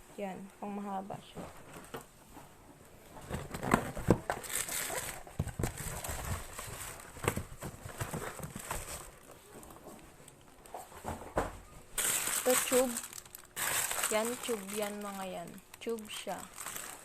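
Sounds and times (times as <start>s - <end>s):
plastic wrapping rustling: 1.2s - 17.0s
items knocking and clicking: 3.1s - 15.3s.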